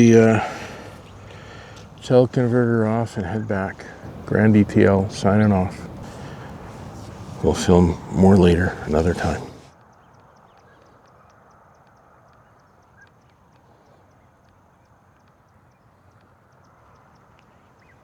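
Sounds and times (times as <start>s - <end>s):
soft distant calls: 0.0s - 9.7s.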